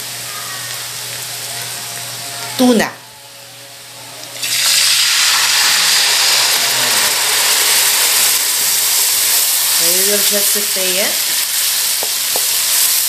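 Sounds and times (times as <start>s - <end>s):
fish sizzling in a frying pan: 4.4s - 13.0s.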